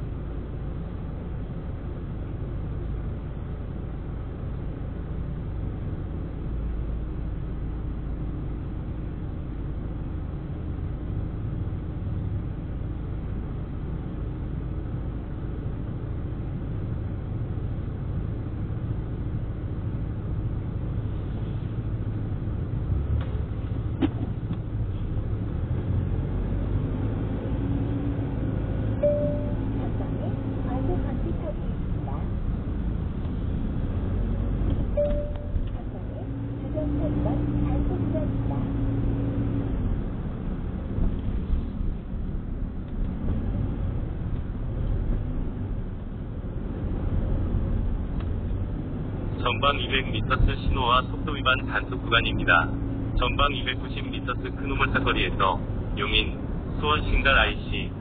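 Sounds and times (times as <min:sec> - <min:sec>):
car engine idling: 0:29.0 - 0:33.6.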